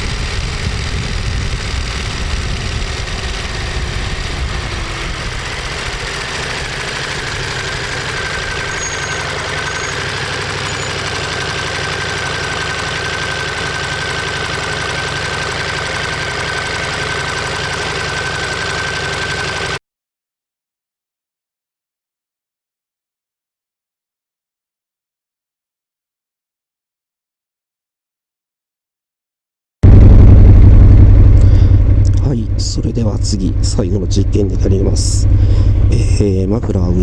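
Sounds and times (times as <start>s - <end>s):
motorcycle engine idling: 0.0s - 19.8s, 29.8s - 37.0s
thin steady whine: 0.0s - 19.8s, 29.8s - 37.0s.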